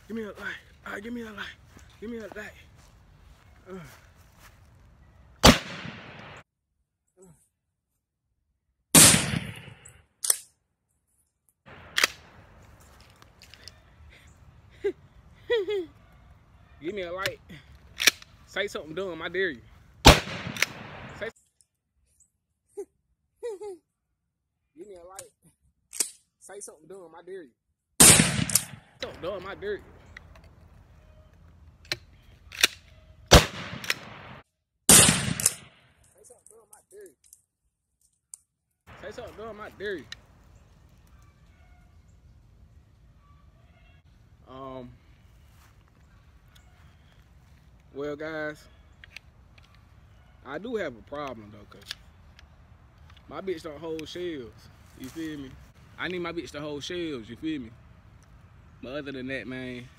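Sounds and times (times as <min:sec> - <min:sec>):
shotgun blast: 0:05.4 - 0:06.4, 0:09.0 - 0:09.9, 0:20.0 - 0:21.3, 0:28.0 - 0:28.9, 0:33.3 - 0:35.7
sharp clicks: 0:20.2 - 0:21.2, 0:31.8 - 0:34.4.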